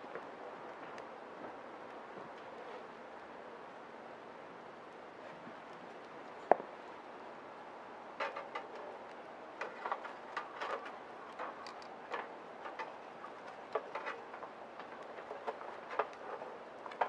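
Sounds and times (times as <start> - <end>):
wood fire crackling: 5.2 - 17.0.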